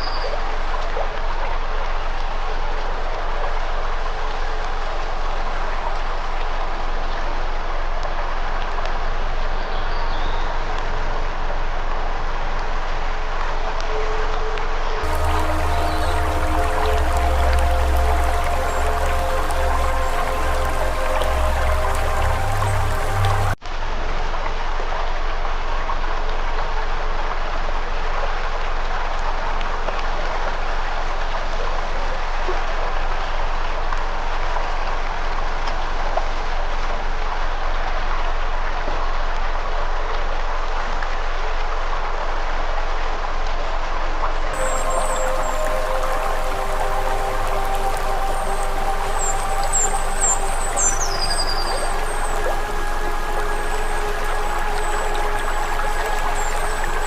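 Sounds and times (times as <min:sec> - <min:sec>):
music: 0:15.0 - 0:23.6, 0:44.6 - 0:57.0.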